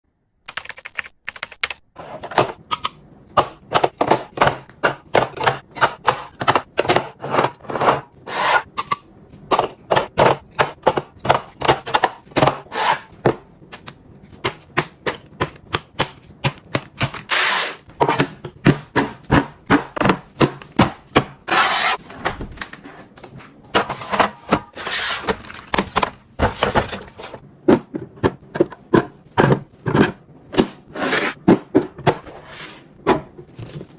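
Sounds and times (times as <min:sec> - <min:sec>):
rustling and scraping: 0:32.2 - 0:33.9.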